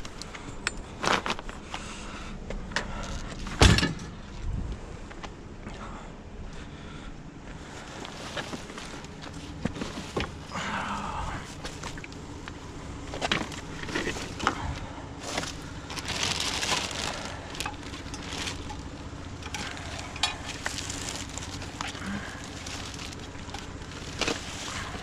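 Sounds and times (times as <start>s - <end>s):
steady low hum: 0.0s - 25.0s
clicks knocks and rustling of junk: 2.5s - 4.2s, 13.1s - 14.7s, 15.3s - 25.0s.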